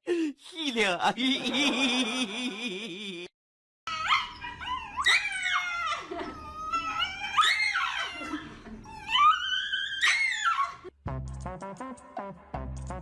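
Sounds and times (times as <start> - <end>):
dog whining and howling: 3.9 - 10.9.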